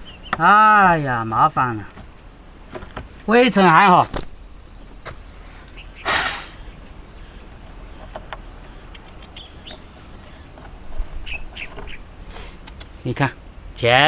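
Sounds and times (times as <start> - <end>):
crickets chirring: 0.0 - 14.0
faint handling clicks: 7.9 - 13.0.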